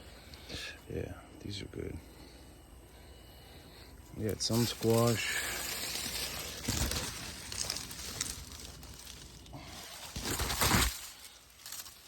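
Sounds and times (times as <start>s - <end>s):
steady hiss: 0.0s - 12.0s
rustling: 4.2s - 12.0s.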